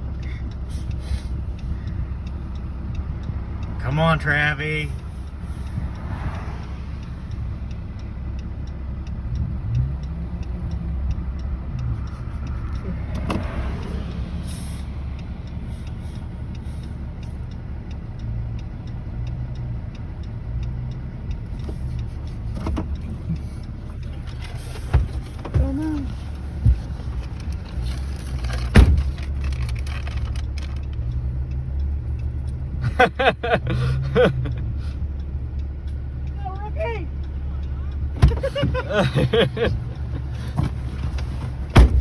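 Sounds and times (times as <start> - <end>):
truck engine droning: 0.0 - 42.0.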